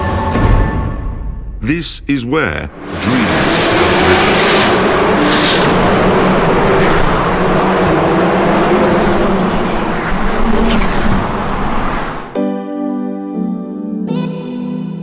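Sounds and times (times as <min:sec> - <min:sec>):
car engines droning: 0:02.7 - 0:12.4
cars whooshing past: 0:02.7 - 0:12.4.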